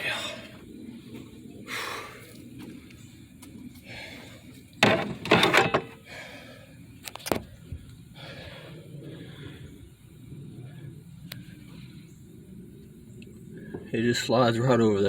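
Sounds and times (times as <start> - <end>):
clattering and knocking: 4.8 - 6.0.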